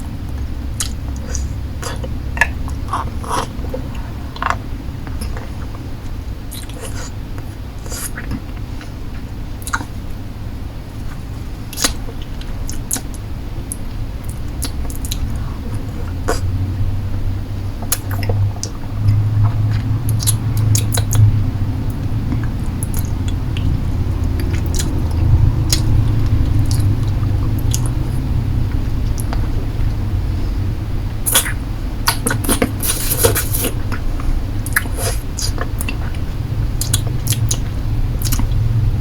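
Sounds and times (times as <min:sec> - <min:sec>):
low steady rumble: 0:00.0 - 0:39.0
lollipop sucking and licking: 0:31.3 - 0:33.8
wet mouth smacks and clicks: 0:38.2 - 0:38.4.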